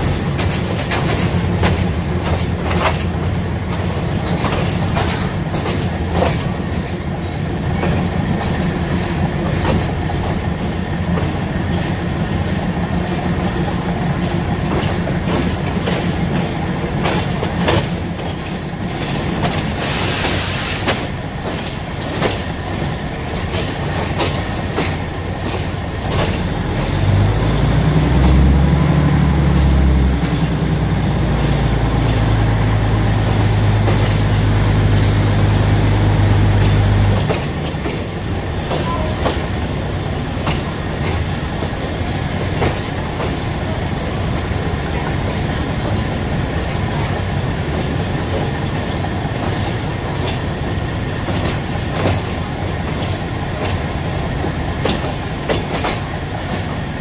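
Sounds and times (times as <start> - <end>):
train rumbling: 0.0 - 57.0
wheels clacking over rail joints: 0.0 - 57.0
brief hiss: 19.8 - 21.0.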